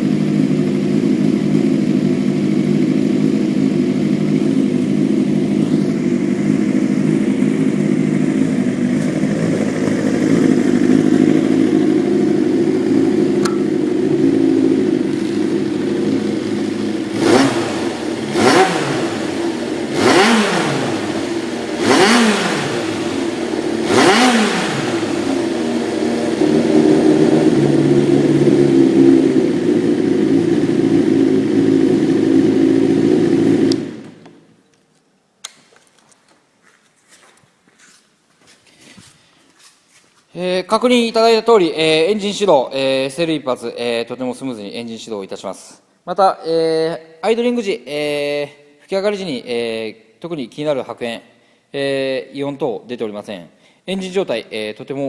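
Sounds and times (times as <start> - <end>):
motorcycle engine idling: 0.0 - 34.3
motorcycle engine revving: 0.0 - 34.4.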